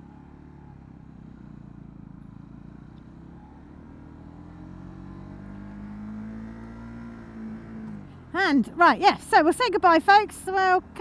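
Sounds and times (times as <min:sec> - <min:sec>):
motorcycle engine accelerating: 0:00.0 - 0:08.5.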